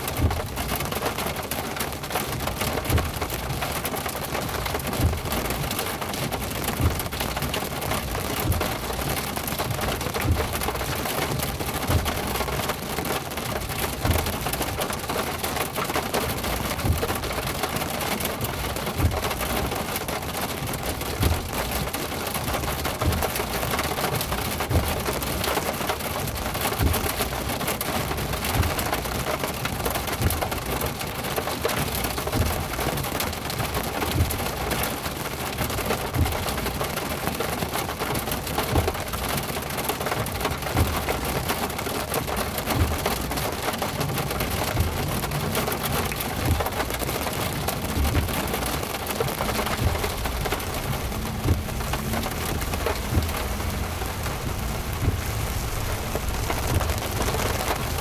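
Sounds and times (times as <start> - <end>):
heavy rain hitting a car: 0.0 - 58.0
soft low thump: 49.1 - 58.0.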